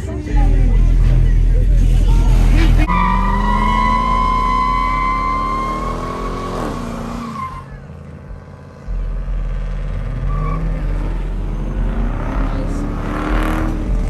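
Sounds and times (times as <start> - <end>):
deep engine rumble: 0.0 - 14.0
car engine revving high: 0.4 - 14.0
tire squeal: 1.7 - 8.0, 10.1 - 11.7.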